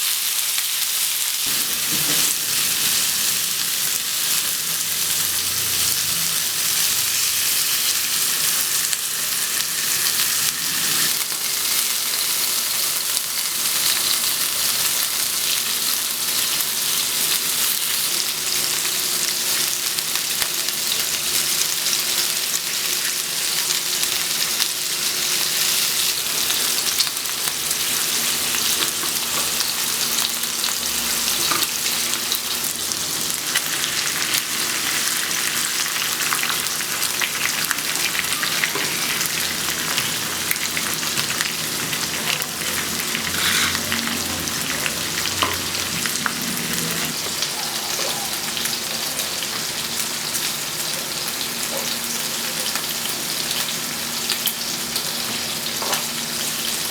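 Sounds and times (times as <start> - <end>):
meat sizzling on a grill: 0.0 - 56.9
hot fat crackling: 35.3 - 48.5.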